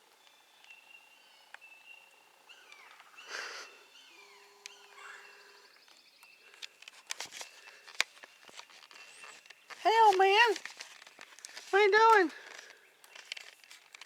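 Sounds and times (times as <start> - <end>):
birds chirping: 0.0 - 14.0
brief rustle: 6.5 - 14.0.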